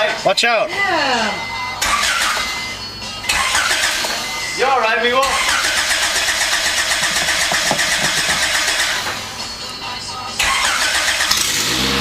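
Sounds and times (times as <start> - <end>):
car engine running loud and raspy: 10.4 - 12.0.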